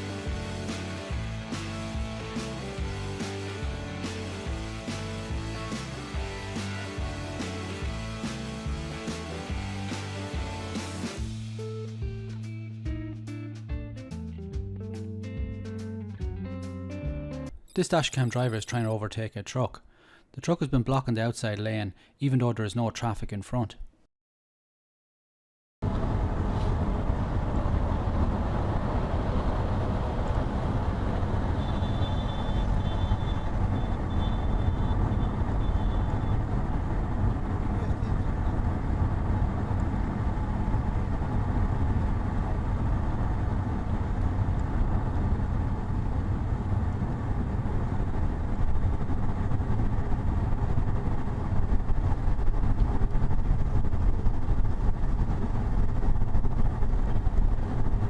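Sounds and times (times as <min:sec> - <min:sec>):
car road and engine noise: 0:00.0 - 0:11.5, 0:25.8 - 0:58.0.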